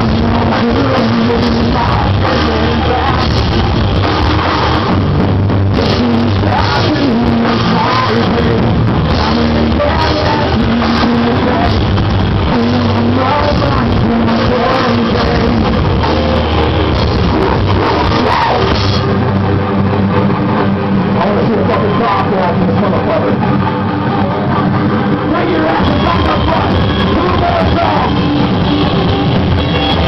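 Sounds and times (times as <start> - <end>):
person singing: 0.0 - 4.8, 5.7 - 19.1
live rock band playing: 0.0 - 30.0.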